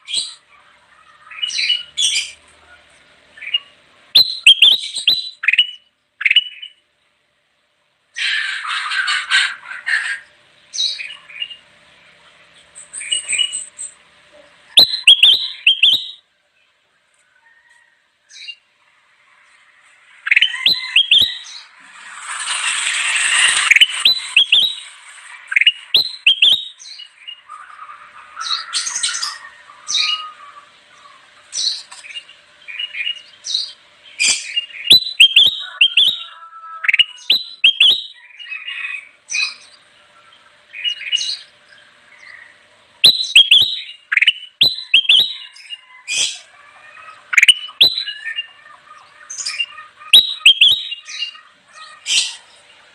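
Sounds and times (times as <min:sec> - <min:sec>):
bird singing whistled notes: 0:03.4 - 0:06.8, 0:14.7 - 0:16.2, 0:20.2 - 0:21.7, 0:22.6 - 0:27.5, 0:31.6 - 0:39.7, 0:43.0 - 0:46.4, 0:47.3 - 0:48.5, 0:49.3 - 0:51.4.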